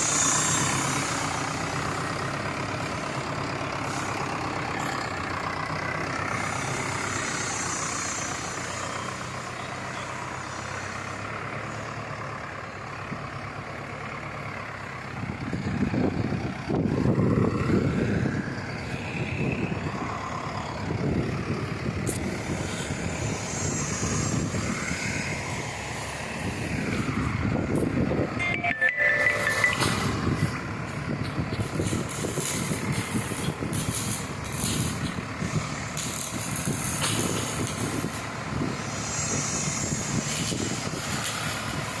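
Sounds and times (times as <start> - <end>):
backhoe diesel engine running: 0.0 - 42.0.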